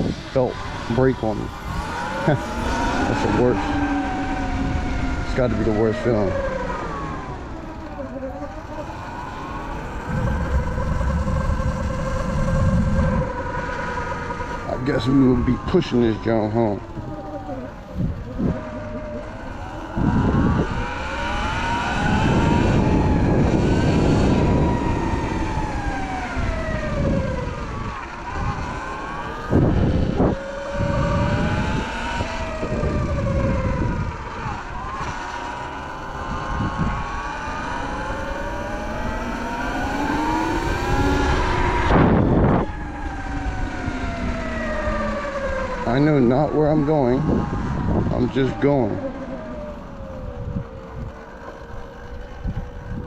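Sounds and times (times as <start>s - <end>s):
electric motorbike motor whining: 0.0s - 53.0s
wind rumble on microphone: 0.0s - 53.0s.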